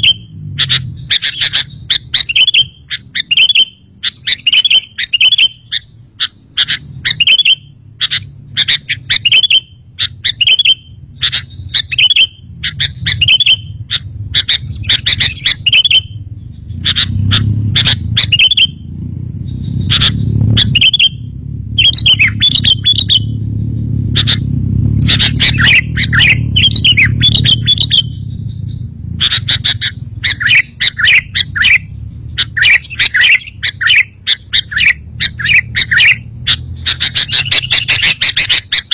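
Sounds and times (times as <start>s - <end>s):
bird chirping phrases: 0.0s - 38.9s
low rumble: 10.9s - 37.8s.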